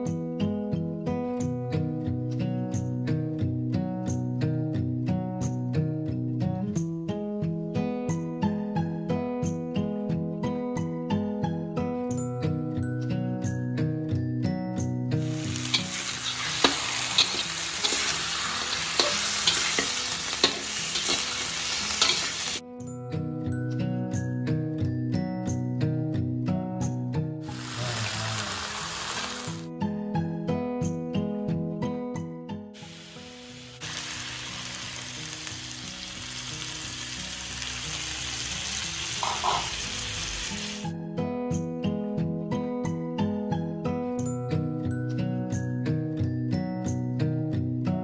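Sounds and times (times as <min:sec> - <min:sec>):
soft background music: 0:00.0 - 0:28.4, 0:29.0 - 0:48.0
food sizzling in hot oil: 0:15.2 - 0:22.6, 0:27.4 - 0:29.7, 0:32.8 - 0:40.9
spatula scraping a pan: 0:15.2 - 0:22.6, 0:39.2 - 0:40.0.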